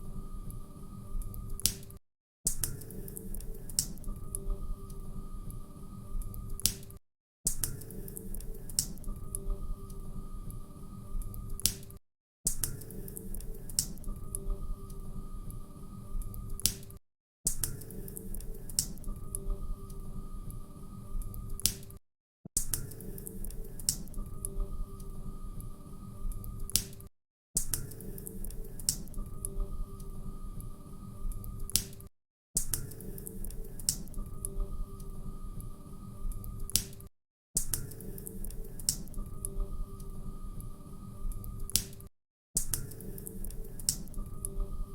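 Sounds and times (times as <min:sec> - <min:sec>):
sharp pops and snaps: 0:01.6 - 0:02.8, 0:06.6 - 0:07.8, 0:11.6 - 0:12.8, 0:16.6 - 0:17.8, 0:21.6 - 0:22.0, 0:26.7 - 0:28.0, 0:31.7 - 0:33.0, 0:36.7 - 0:38.0, 0:41.7 - 0:42.9.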